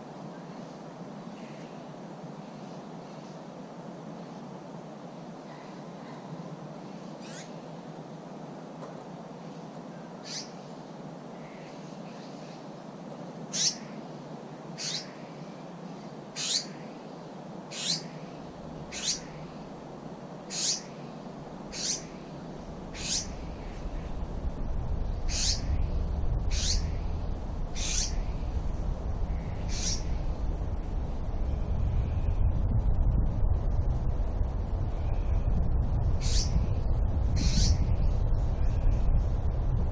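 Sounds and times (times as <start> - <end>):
steady outdoor hiss: 0.0 - 39.9
bird calling with high downward calls: 7.1 - 7.6, 10.0 - 10.7, 13.5 - 14.0, 14.8 - 17.1, 17.7 - 19.6, 20.5 - 22.3, 22.9 - 24.0, 25.3 - 25.7, 26.5 - 27.0, 27.8 - 28.3, 29.6 - 30.2
low rumble: 21.5 - 39.9.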